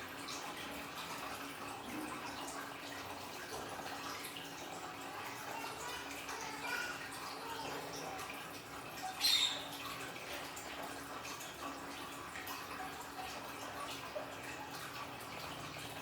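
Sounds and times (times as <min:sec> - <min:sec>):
water trickling and dripping: 0:00.0 - 0:16.0.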